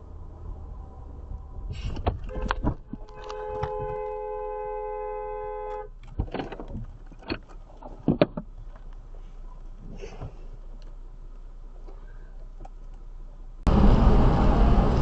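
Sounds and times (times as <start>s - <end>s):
car horn two-tone blast: 2.3s - 6.0s.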